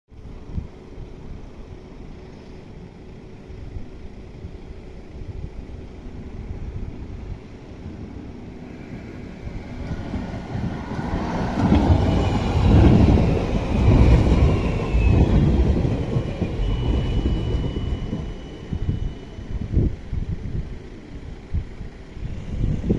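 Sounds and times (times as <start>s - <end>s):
tram wheels rumbling on rails: 0.2s - 22.9s
thin high whines: 8.6s - 20.6s.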